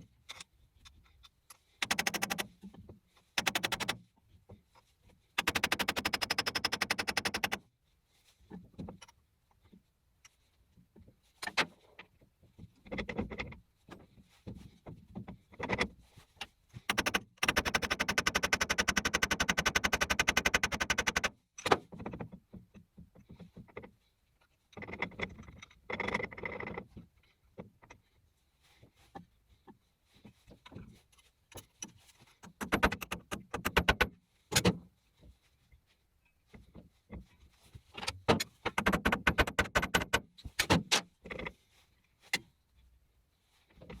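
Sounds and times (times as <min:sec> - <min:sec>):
rapid mechanical rattle: 0:03.4 - 0:04.0.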